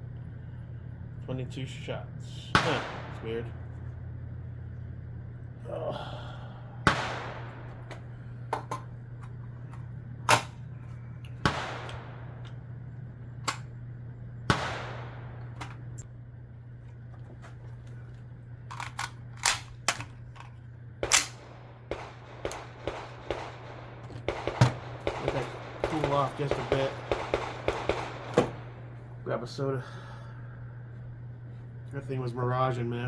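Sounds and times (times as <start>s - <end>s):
steady low hum: 0.0s - 33.0s
suppressed rifle shots: 2.5s - 3.9s, 6.8s - 8.3s, 11.4s - 12.8s, 14.5s - 16.0s, 21.0s - 29.2s
quieter sharp cracks and pops: 6.8s - 9.4s, 11.3s - 12.8s, 14.5s - 16.1s, 18.1s - 29.1s.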